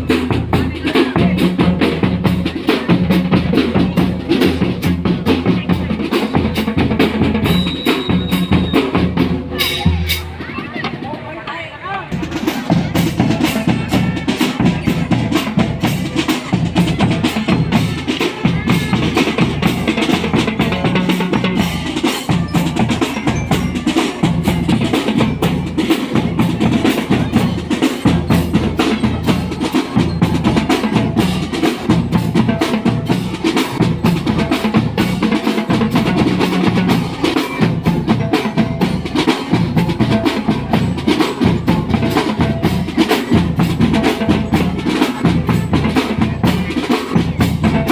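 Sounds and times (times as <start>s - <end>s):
drums playing fast beat: 0.0s - 47.9s.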